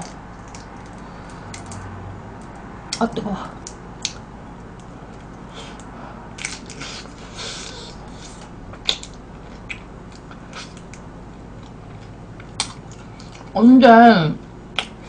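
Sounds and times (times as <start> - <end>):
crunchy biting and chewing: 5.1 - 11.0, 11.6 - 13.5.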